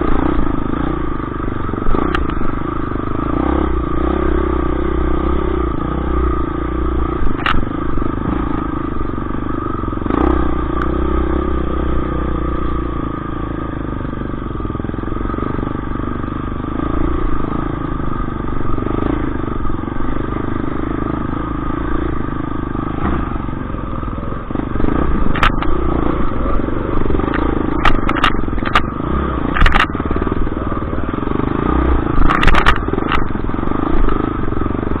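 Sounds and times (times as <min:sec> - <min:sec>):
motorcycle engine running: 0:00.0 - 0:35.0
sharp clicks or knocks: 0:07.2 - 0:07.7, 0:25.2 - 0:25.8, 0:27.2 - 0:28.9, 0:29.5 - 0:30.0, 0:32.2 - 0:33.4.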